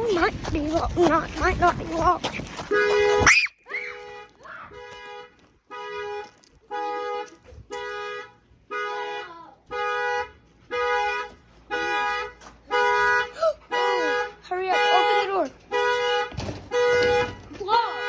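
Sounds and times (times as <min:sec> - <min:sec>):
car alarm two-tone horn honks: 0:03.9 - 0:18.0.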